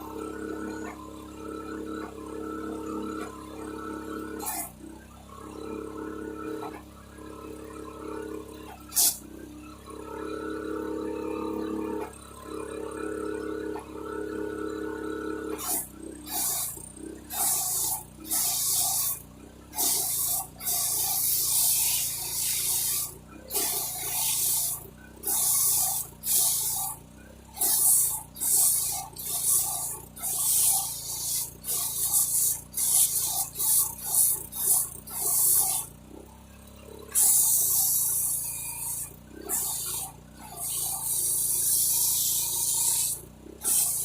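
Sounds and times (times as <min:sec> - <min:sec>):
pressure washer spray hissing: 0:08.9 - 0:09.2, 0:15.6 - 0:16.7, 0:17.3 - 0:19.2, 0:19.8 - 0:27.0, 0:27.6 - 0:35.9, 0:37.2 - 0:44.0.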